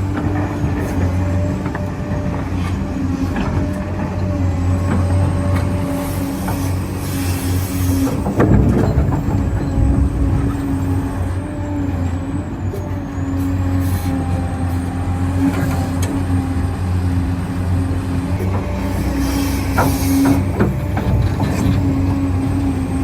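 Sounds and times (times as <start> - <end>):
low engine-like hum: 0.0 - 23.0
electric motor whine: 13.8 - 23.0.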